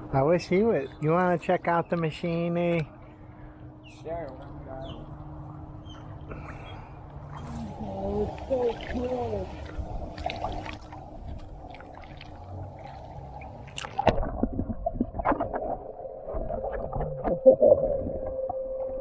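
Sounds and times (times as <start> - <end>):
pool cleaner motor hum: 5.4 - 13.8
water splashing: 6.3 - 18.3.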